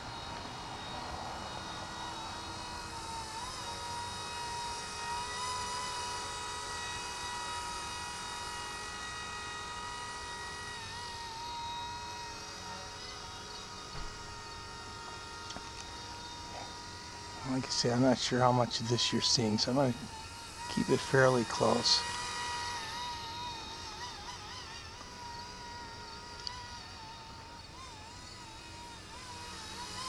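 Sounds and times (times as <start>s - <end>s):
rc helicopter motor whine: 0.0s - 30.0s.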